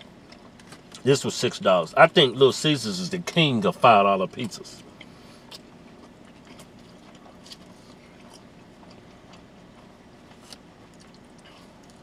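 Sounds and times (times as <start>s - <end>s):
faint chewing: 0.0s - 1.1s, 4.4s - 12.0s.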